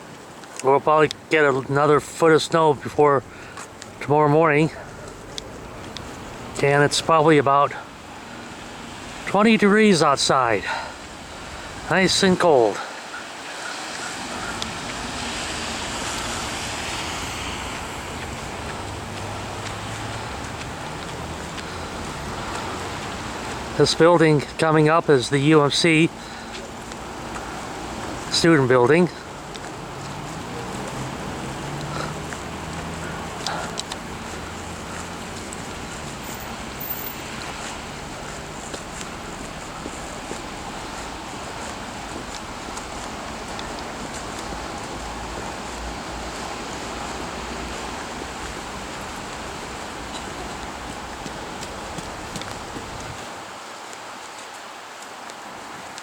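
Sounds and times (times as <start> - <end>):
background traffic: 0.0 - 56.0
wind rushing: 14.2 - 23.8
wind buffeting microphone: 29.2 - 53.5.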